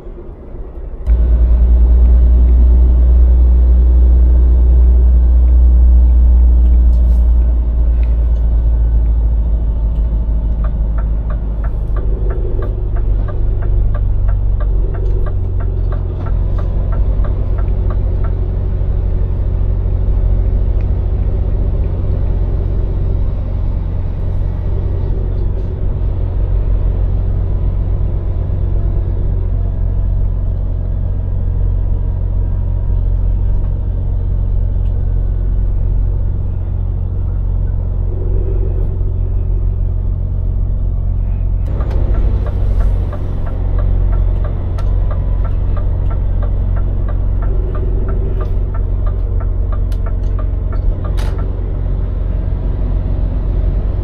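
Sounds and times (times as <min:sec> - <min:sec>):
lorry diesel engine drone: 0:00.0 - 0:54.0
regular ticking: 0:08.4 - 0:19.0, 0:41.6 - 0:51.9.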